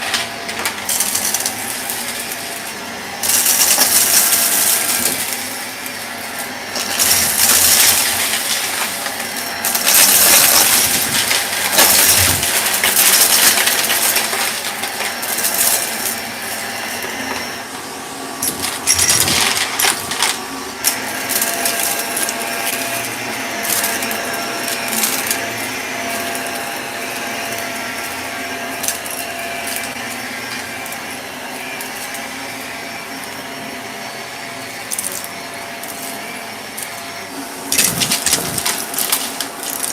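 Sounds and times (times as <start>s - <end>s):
vacuum cleaner running: 0.0s - 39.9s
debris rattling up suction: 37.7s - 39.9s.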